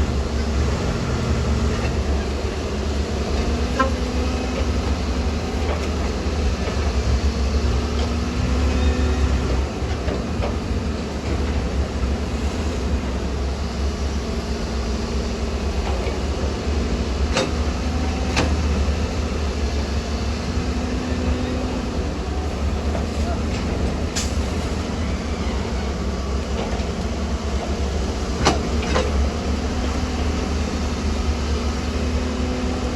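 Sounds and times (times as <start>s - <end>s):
diesel engine rumbling: 0.0s - 32.9s.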